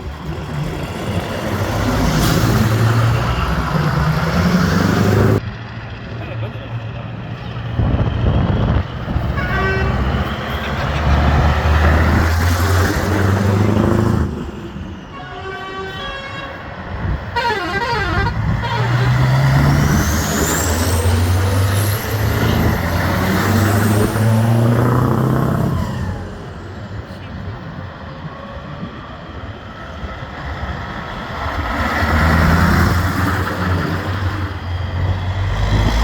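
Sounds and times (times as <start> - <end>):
trucks driving past: 0.0 - 36.0
truck horn: 9.2 - 11.5, 15.1 - 19.6.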